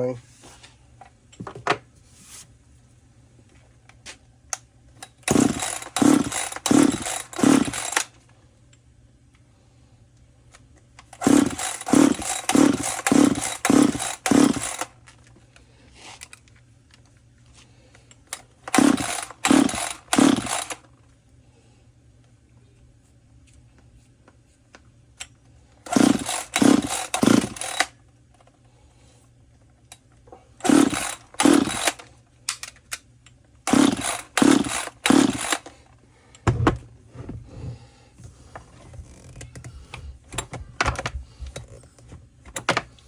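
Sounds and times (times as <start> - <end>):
chainsaw pull-start cranking: 5.0 - 8.1, 11.1 - 15.0, 18.7 - 20.9, 25.9 - 28.0, 30.6 - 32.1, 33.7 - 35.8.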